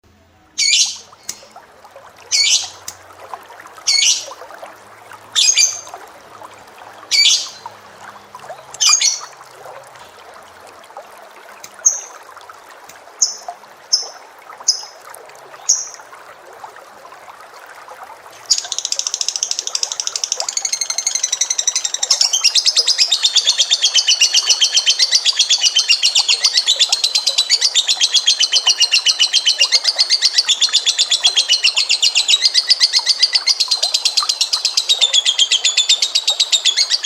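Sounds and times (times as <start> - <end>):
canary trilling: 0.6 - 1.5, 2.3 - 2.8, 3.9 - 4.4, 5.4 - 6.0, 7.1 - 7.7
high bird chirps: 0.6 - 1.5, 2.3 - 2.8, 3.9 - 4.4, 5.4 - 6.0, 7.1 - 7.7, 8.7 - 9.3.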